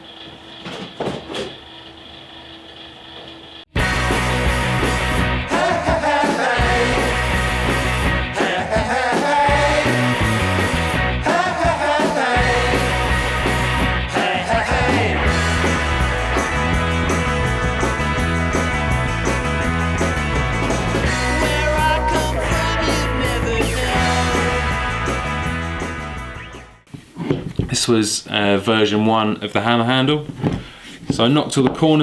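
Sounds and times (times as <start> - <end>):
rock song with vocals: 3.8 - 26.3.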